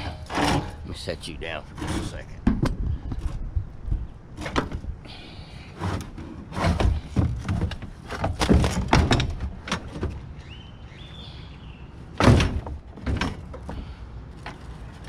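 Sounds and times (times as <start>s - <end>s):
metal clanks and thunks: 0.0s - 1.0s, 4.4s - 4.9s, 5.8s - 10.2s, 12.1s - 15.0s
metal scrape: 0.0s - 2.4s.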